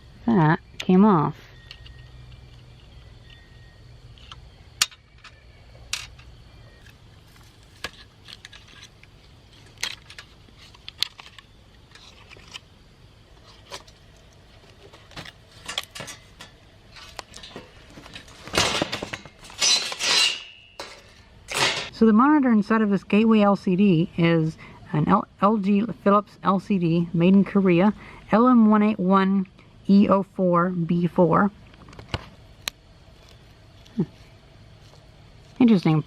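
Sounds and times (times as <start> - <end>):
plastic and metal parts clicking: 7.8 - 12.6.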